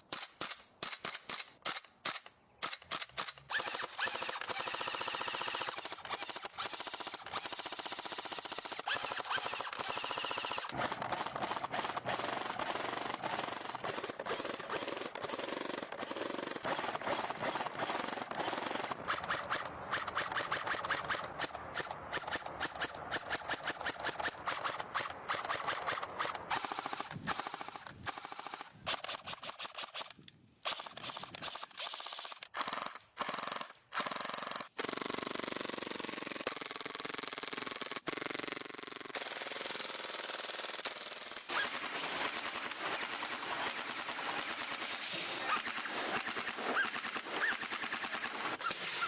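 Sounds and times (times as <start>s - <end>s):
airsoft gun firing: 0.1s - 30.1s, 41.4s - 49.0s.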